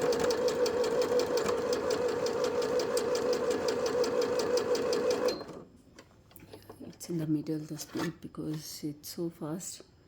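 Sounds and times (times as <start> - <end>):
sewing machine running: 0.0 - 5.6.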